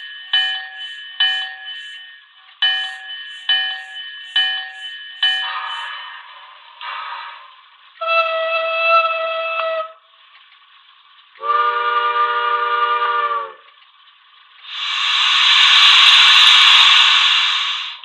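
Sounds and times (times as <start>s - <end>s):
loud steady hiss: 0.8s - 18.0s
steam whistle blasts: 8.0s - 10.0s, 11.4s - 13.7s, 14.7s - 18.0s.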